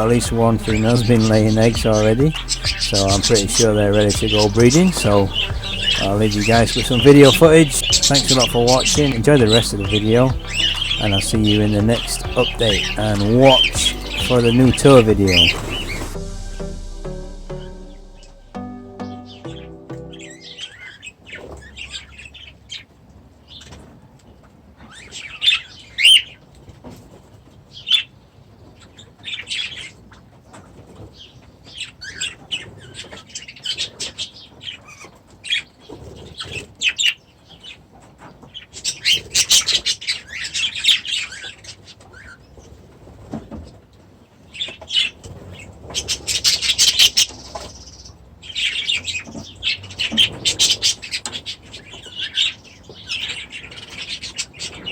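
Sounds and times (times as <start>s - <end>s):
budgies chirping and calling: 0.0s - 16.2s.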